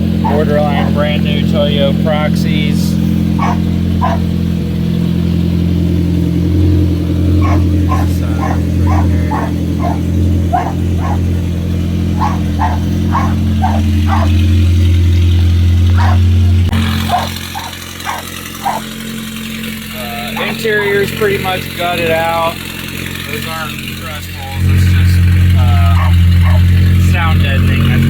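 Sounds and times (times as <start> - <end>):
car engine idling: 0.0 - 28.0
dog barking: 0.2 - 1.2, 3.3 - 4.4, 7.4 - 14.9, 15.9 - 18.9, 20.3 - 21.2, 25.6 - 26.9.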